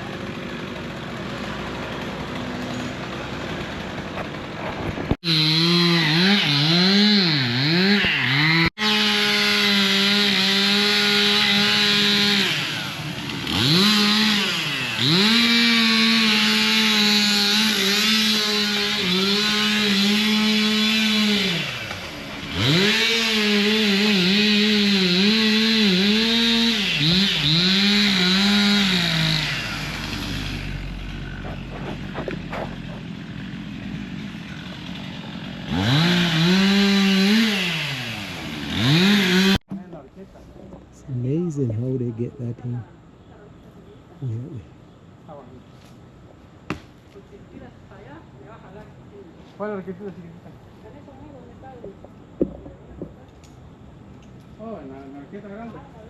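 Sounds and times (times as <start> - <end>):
chainsaw cutting tree limbs: 0.0 - 39.8.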